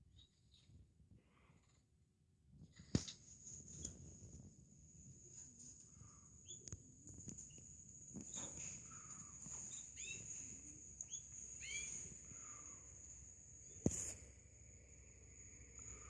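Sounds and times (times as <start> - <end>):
small birds chirping: 0.0 - 0.7, 5.3 - 16.0.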